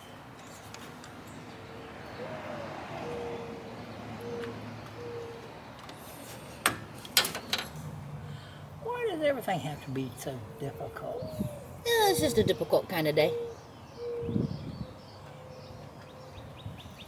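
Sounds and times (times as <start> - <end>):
dove cooing: 2.1 - 5.7, 10.5 - 14.5.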